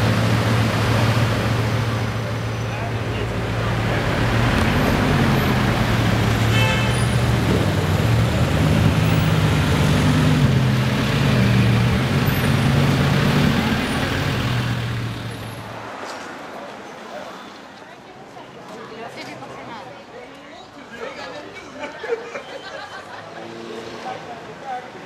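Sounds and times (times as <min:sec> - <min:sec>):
car engine pulling away: 0:00.0 - 0:15.7.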